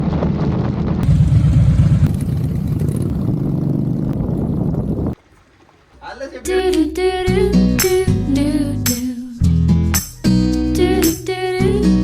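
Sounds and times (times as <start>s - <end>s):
motorcycle engine running: 1.0s - 8.4s.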